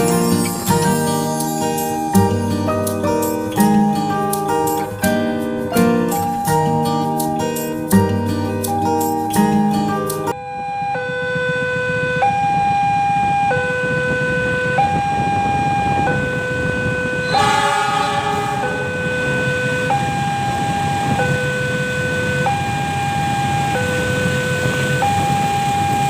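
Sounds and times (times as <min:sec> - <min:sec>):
two-tone level crossing alarm: 0:08.7 - 0:26.0
train horn: 0:17.2 - 0:19.9.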